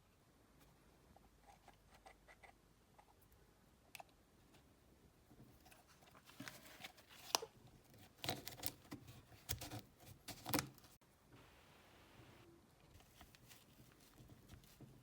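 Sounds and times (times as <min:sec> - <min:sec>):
faint hiss: 0:11.0 - 0:15.0.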